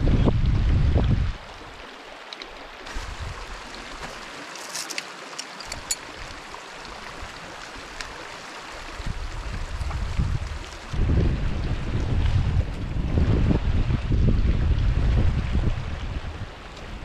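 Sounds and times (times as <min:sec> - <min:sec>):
wind gusting on microphone: 0:00.0 - 0:01.8, 0:02.8 - 0:04.4, 0:08.8 - 0:17.0
creek water running: 0:00.0 - 0:17.0.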